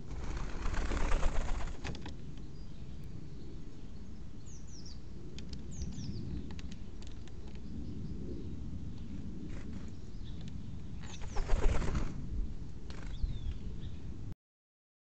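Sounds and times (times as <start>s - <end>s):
bird wings flapping: 0.0s - 2.1s, 11.0s - 12.2s, 12.8s - 13.4s
small birds chirping: 1.2s - 11.9s, 12.9s - 14.2s.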